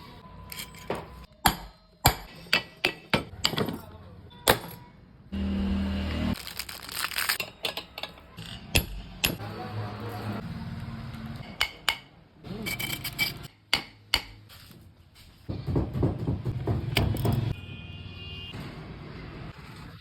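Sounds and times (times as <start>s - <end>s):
metal tools clinking: 0.5s - 1.2s, 6.6s - 8.7s, 12.6s - 13.5s.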